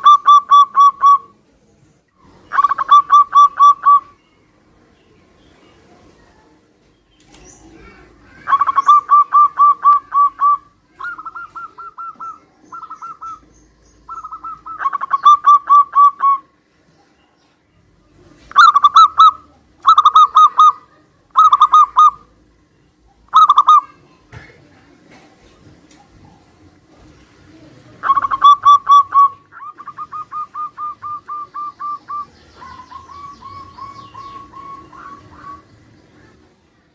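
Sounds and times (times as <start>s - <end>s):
doves cooing: 0.0s - 1.3s, 2.2s - 4.2s, 7.3s - 16.5s, 18.3s - 22.4s, 23.2s - 23.8s, 25.1s - 36.6s.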